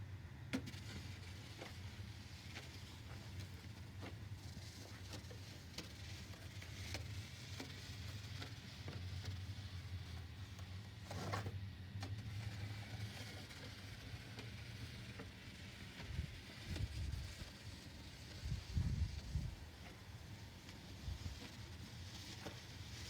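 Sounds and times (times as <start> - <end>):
snow shovel scraping snow: 4.6 - 11.5.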